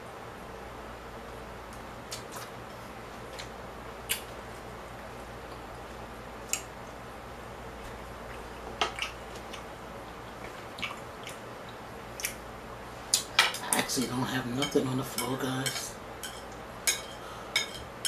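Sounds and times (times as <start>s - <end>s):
low background hum: 0.0s - 18.0s
chewing noodles: 8.2s - 12.4s
wet mouth clicks and smacks: 10.8s - 11.4s, 12.2s - 12.4s.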